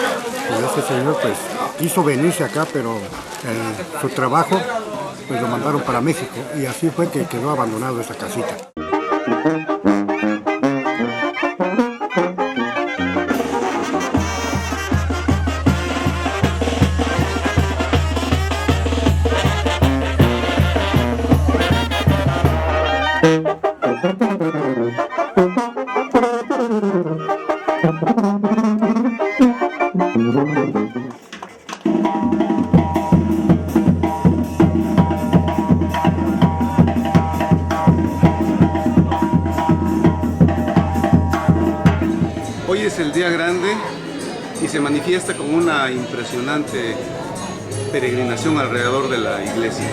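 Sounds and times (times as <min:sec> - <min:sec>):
brass band music with drums: 0:08.8 - 0:49.9.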